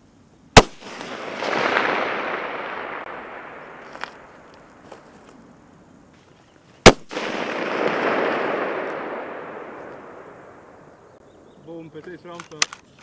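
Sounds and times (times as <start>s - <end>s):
rifle shot: 0.5s - 4.8s, 6.8s - 11.2s
rolling echo of gunshot: 0.6s - 4.7s, 6.8s - 11.2s.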